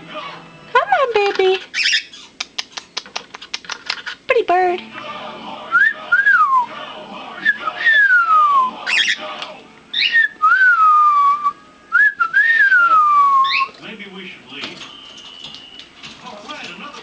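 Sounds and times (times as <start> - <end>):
cockatiel whistling: 7.4 - 9.2, 9.9 - 13.8.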